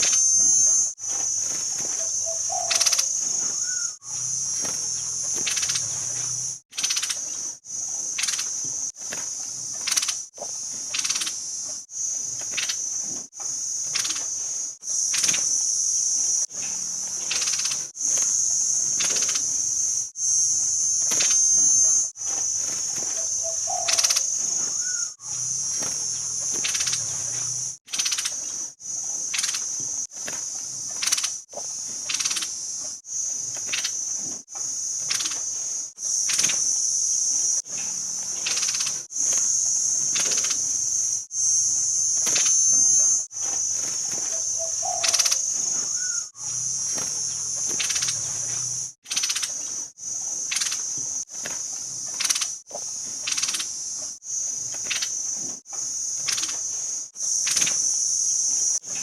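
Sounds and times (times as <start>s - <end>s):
bird chirps: 0.0s - 8.6s, 10.9s - 11.4s, 13.7s - 29.8s, 32.1s - 32.5s, 34.9s - 49.8s, 50.5s - 50.9s, 53.2s - 53.7s, 56.2s - 57.9s
high-pitched insect drone: 0.0s - 59.0s.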